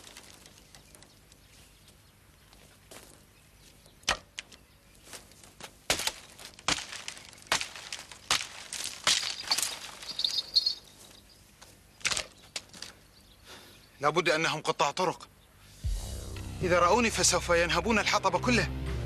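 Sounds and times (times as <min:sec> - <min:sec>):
sharp knocks and cracks: 0:00.0 - 0:01.4, 0:03.9 - 0:10.4, 0:12.0 - 0:13.0
high chirping: 0:09.4 - 0:11.4.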